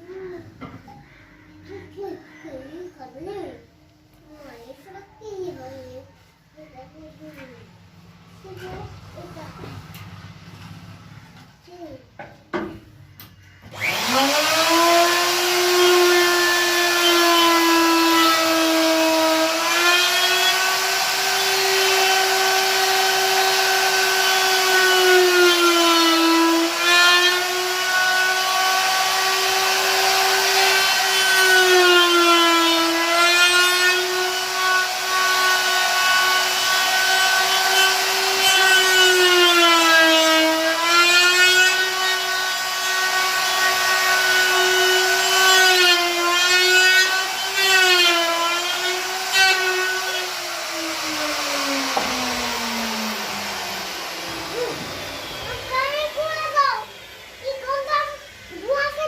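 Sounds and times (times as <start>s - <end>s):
electric wood router whining: 13.6s - 59.0s.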